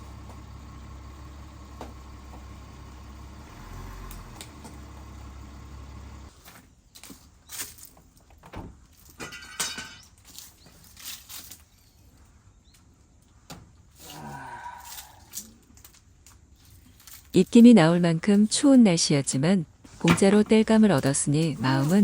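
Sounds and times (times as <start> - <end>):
car engine idling: 0.0 - 6.3, 20.7 - 22.0
wooden logs knocking and clattering: 0.0 - 6.3.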